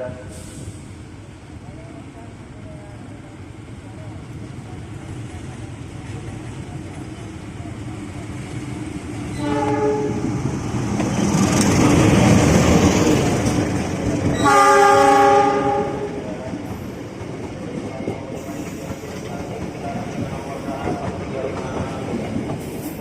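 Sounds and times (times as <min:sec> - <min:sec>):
train horn blasts: 0:00.0 - 0:00.4, 0:09.3 - 0:10.3, 0:14.4 - 0:16.2
train rumbling: 0:00.0 - 0:23.0.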